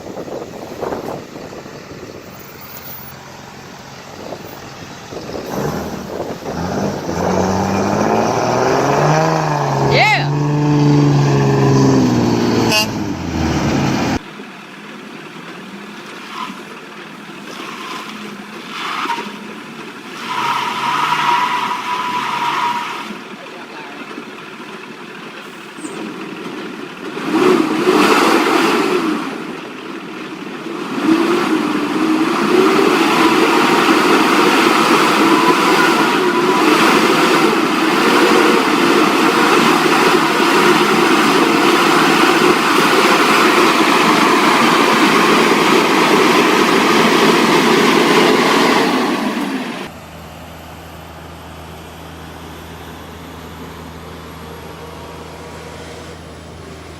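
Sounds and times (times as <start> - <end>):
vehicle engines revving: 0.0 - 14.2, 16.2 - 56.9.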